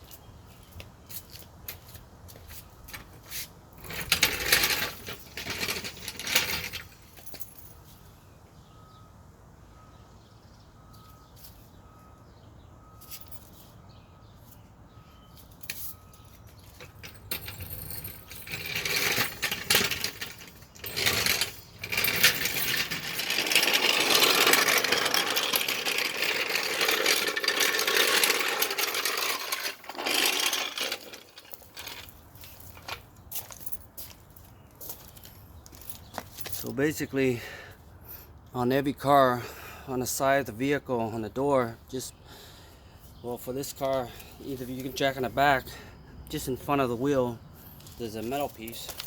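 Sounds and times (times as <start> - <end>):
metallic clattering of tools: 3.8 - 7.8, 15.5 - 33.8.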